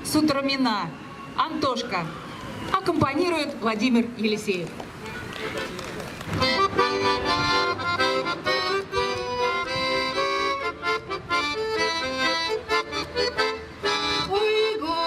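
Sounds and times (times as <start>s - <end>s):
accordion playing: 5.4s - 15.0s.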